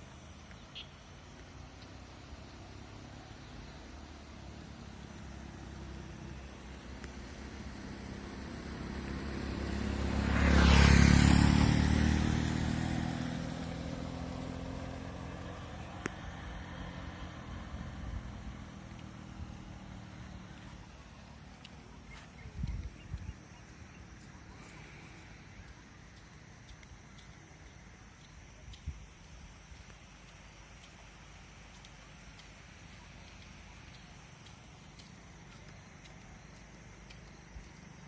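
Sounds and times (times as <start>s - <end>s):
vehicle passing by: 1.6s - 27.1s.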